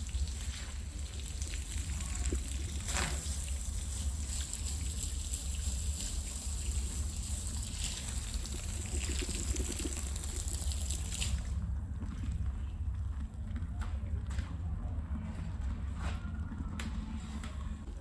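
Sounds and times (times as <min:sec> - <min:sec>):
water running and spattering: 0:00.0 - 0:11.6
steady low hum: 0:00.0 - 0:18.0.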